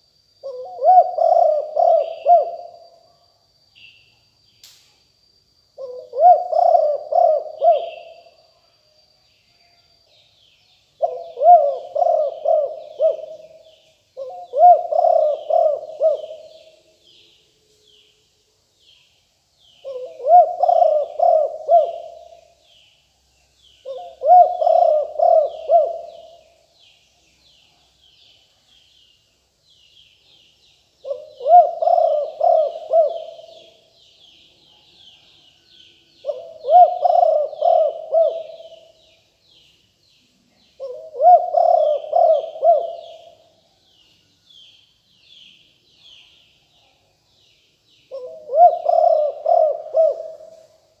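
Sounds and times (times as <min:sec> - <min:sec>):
dove cooing: 0:00.4 - 0:02.9, 0:05.8 - 0:08.3, 0:11.0 - 0:16.8, 0:19.8 - 0:22.6, 0:23.8 - 0:26.5, 0:31.0 - 0:33.9, 0:36.2 - 0:39.0, 0:40.7 - 0:43.5, 0:48.1 - 0:50.8
small birds chirping: 0:10.0 - 0:51.0.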